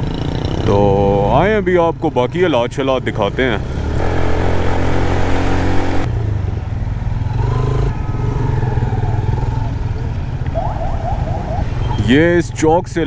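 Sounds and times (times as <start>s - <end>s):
motorcycle engine running: 0.0s - 1.7s.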